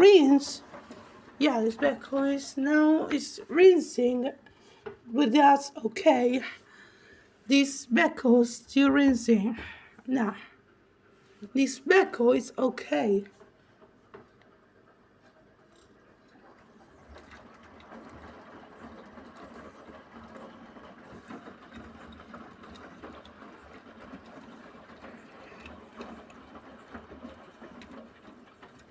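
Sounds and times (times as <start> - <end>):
laundry and water tumbling: 0.0 - 6.6, 15.4 - 28.9
washing machine motor hum: 0.0 - 28.9.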